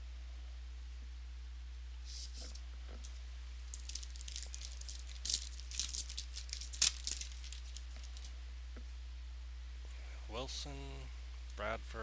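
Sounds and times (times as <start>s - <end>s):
steady low hum: 0.0s - 12.0s
trading cards clicking and rustling: 2.2s - 8.3s.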